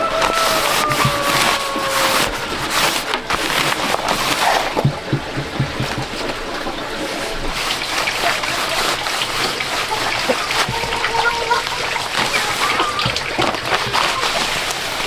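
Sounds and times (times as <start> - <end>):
water sloshing and splashing: 0.0 - 15.0
knocks: 4.7 - 6.4
low thumps: 4.7 - 6.6.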